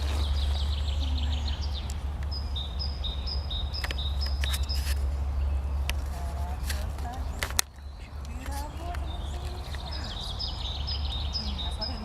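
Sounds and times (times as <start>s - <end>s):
songbird singing: 0.0s - 12.0s
steady low rumble: 0.0s - 12.0s
sharp clicks: 1.6s - 5.1s, 5.8s - 10.5s.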